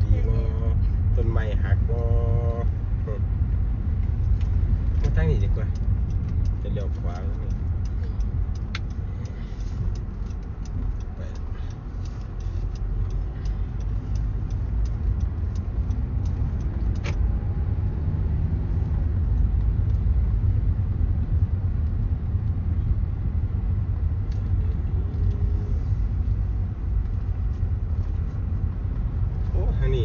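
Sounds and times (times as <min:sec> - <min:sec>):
vehicle engine and road rumble: 0:00.0 - 0:30.0
light ticks: 0:04.0 - 0:17.5, 0:18.8 - 0:20.6, 0:24.2 - 0:30.0.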